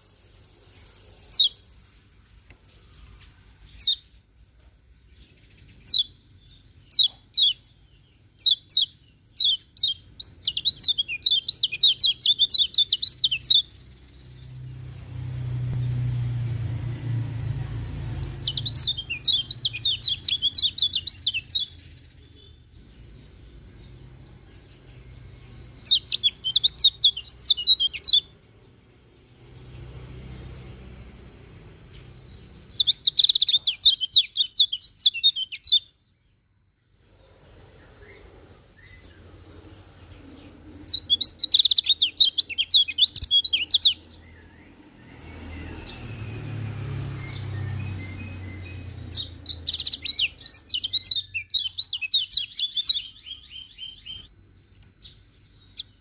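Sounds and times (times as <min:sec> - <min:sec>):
bird chirping and twittering: 0:00.7 - 0:01.7, 0:03.6 - 0:04.2, 0:05.0 - 0:36.4, 0:37.6 - 0:56.0
low rumble: 0:14.4 - 0:19.1.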